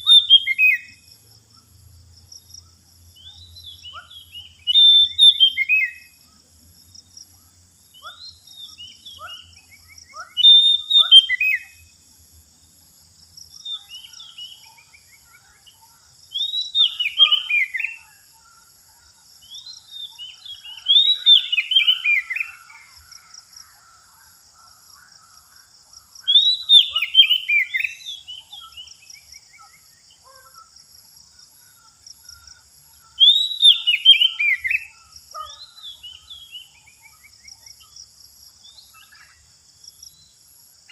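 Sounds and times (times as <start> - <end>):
magpie-robin singing: 0.0 - 1.0, 3.2 - 6.1, 8.0 - 11.8, 16.3 - 18.2, 19.5 - 22.7, 26.2 - 29.0, 33.2 - 37.2.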